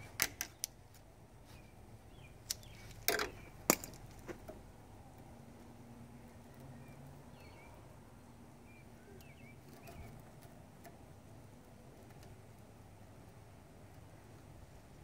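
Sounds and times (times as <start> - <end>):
faint bird chirps: 6.5 - 7.9, 8.6 - 10.2.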